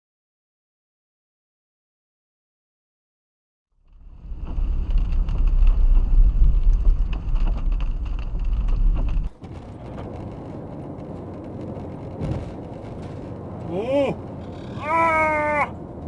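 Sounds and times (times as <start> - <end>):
vehicle driving rumble: 3.8 - 16.0.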